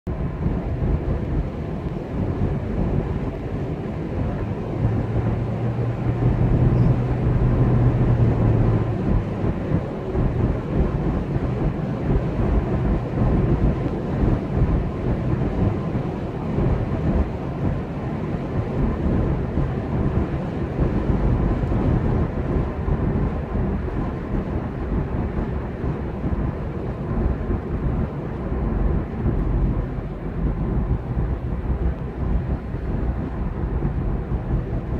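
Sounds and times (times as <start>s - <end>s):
low hum: 0.1s - 34.9s
vehicle rumble and road noise: 0.1s - 34.9s.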